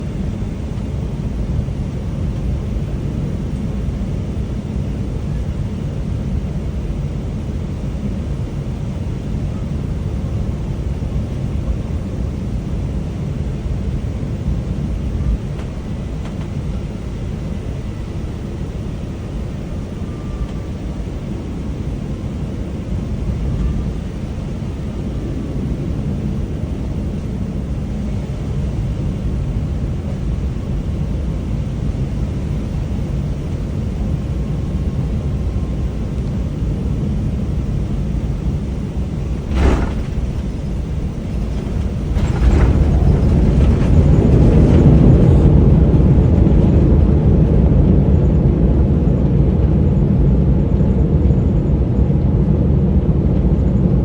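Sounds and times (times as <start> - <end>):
aircraft cabin rumble: 0.0 - 54.0
wheels touching down thud: 39.5 - 44.3.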